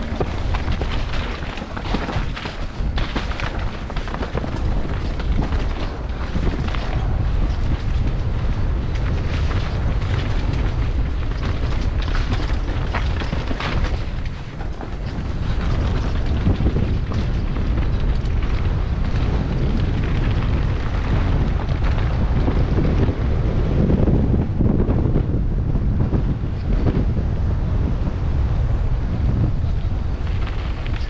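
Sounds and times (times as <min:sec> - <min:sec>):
bike rattling over dirt: 0:00.0 - 0:31.0
bike tyres rumbling: 0:00.0 - 0:31.0
wind buffeting microphone: 0:00.0 - 0:31.0.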